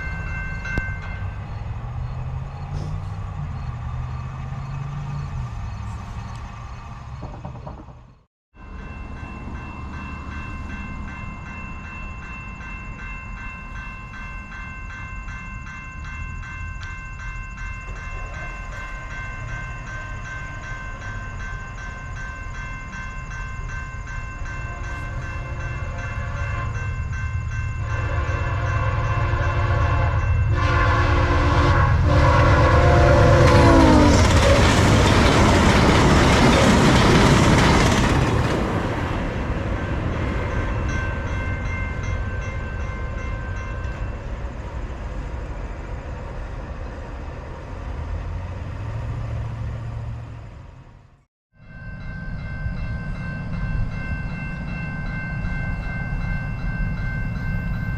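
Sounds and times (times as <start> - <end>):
crossing bell ringing: 0.0 - 6.8, 8.6 - 45.9, 51.5 - 57.9
train rumbling past: 0.0 - 57.9
locomotive horn blasts: 24.6 - 27.0, 27.8 - 34.7.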